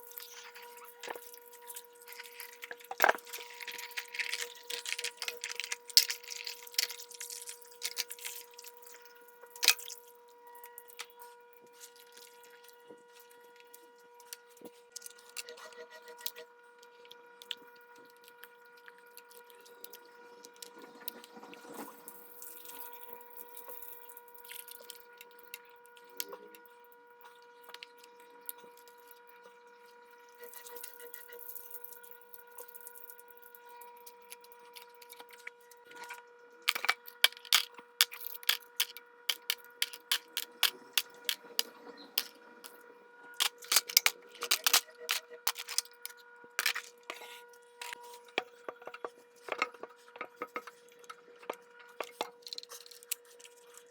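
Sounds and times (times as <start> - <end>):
metal parts clicking and tapping: 36.7 - 42.4, 43.4 - 46.9.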